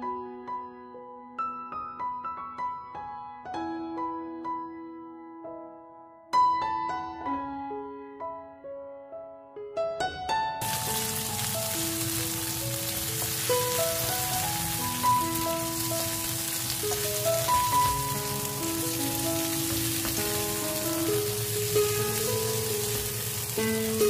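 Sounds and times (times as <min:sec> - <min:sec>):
slow background music: 0:03.1 - 0:24.0
beans sizzling in oil: 0:10.6 - 0:24.0.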